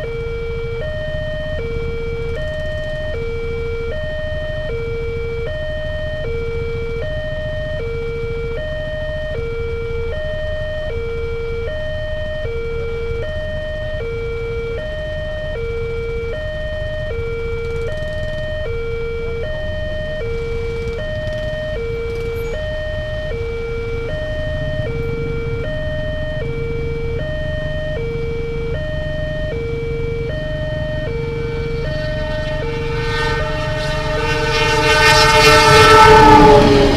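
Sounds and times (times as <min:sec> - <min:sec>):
two-tone level crossing siren: 0:00.0 - 0:36.9
steady low rumble: 0:17.2 - 0:36.9.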